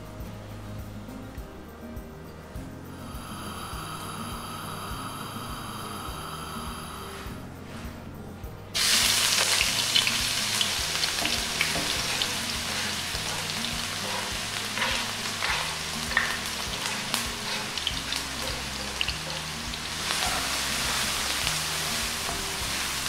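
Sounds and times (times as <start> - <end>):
vegetables sizzling in hot oil: 3.1 - 7.3, 8.8 - 23.0.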